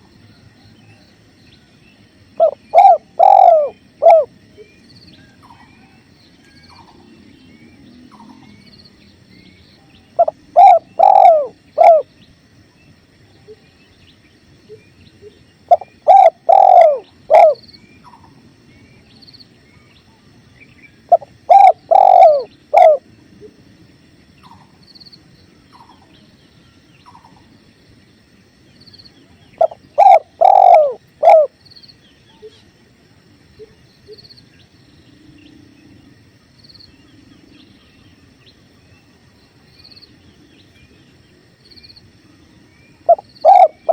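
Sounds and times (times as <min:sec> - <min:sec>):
dove cooing: 0:02.4 - 0:04.3, 0:10.2 - 0:12.1, 0:15.7 - 0:17.6, 0:21.1 - 0:23.0, 0:29.6 - 0:31.6, 0:43.1 - 0:43.9.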